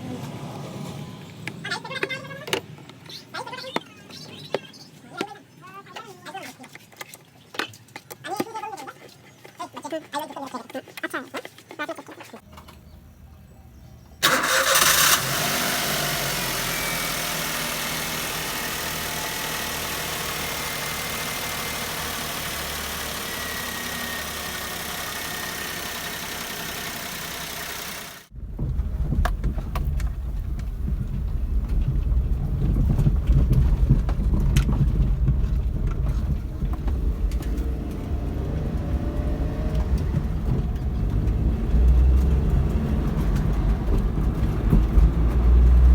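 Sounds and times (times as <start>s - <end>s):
car engine cranking and idling: 12.4s - 45.9s
deep uneven car rumble: 15.4s - 45.9s.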